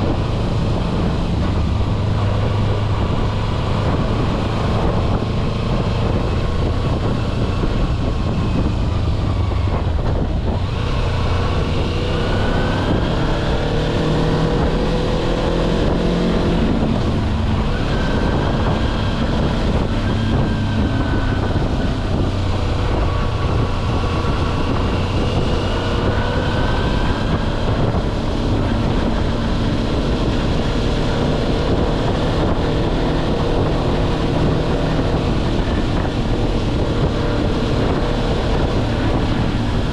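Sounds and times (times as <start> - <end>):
motorcycle engine revving: 0.0 - 39.9
wind rumble on microphone: 0.0 - 39.9.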